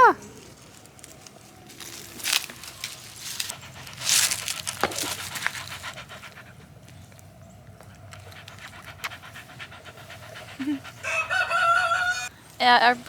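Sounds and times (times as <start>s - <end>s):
rustling: 0.3s - 6.1s
dog panting: 2.7s - 12.3s.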